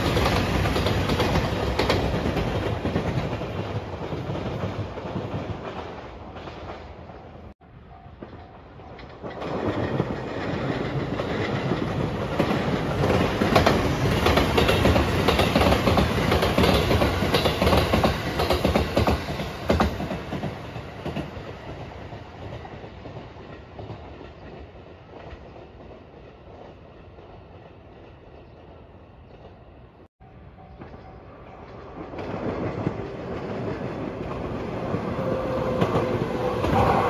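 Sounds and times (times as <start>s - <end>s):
electric train passing: 0.0s - 37.0s
wheels clicking over rail joints: 8.2s - 28.6s.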